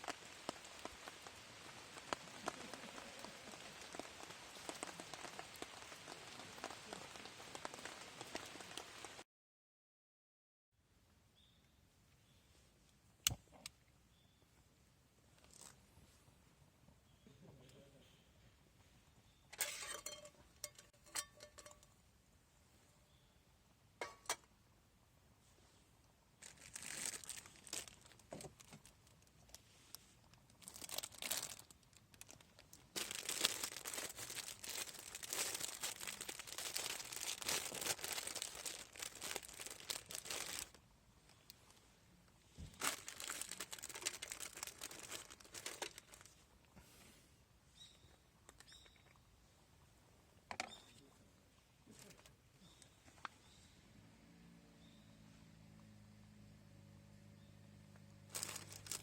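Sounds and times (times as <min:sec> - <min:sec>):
crinkling and rustling: 0:00.0 - 0:09.2, 0:15.3 - 0:16.2, 0:19.6 - 0:22.0, 0:26.4 - 0:46.8, 0:51.9 - 0:53.4, 0:58.2 - 0:59.0.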